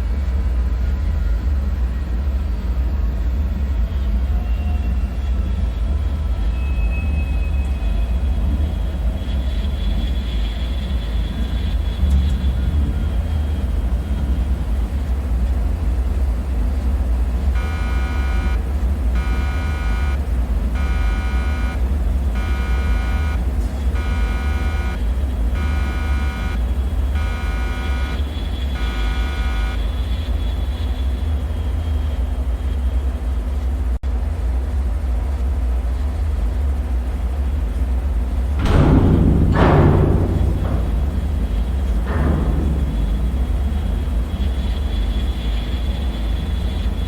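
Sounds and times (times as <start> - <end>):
electronic alarm-like tone: 17.6 - 20.2, 20.8 - 26.6, 27.2 - 29.9
deep rumbling drone: 37.7 - 47.0.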